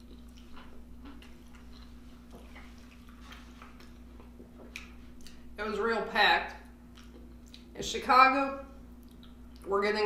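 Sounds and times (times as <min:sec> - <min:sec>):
mouth clicks and smacks eating: 0:00.0 - 0:05.4, 0:06.5 - 0:07.7, 0:08.9 - 0:09.7
faint steady hum: 0:00.0 - 0:10.0.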